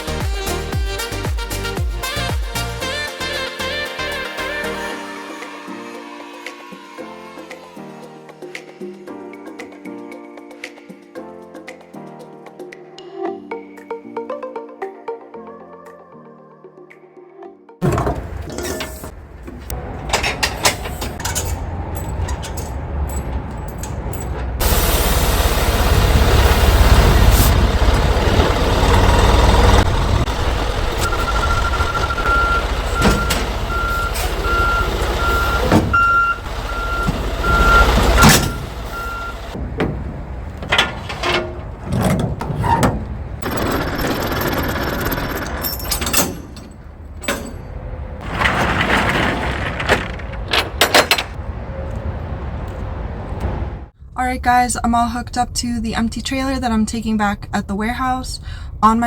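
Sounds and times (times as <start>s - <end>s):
diesel engine rumbling: 17.9s - 59.0s
reversing alarm beeping: 27.8s - 39.6s.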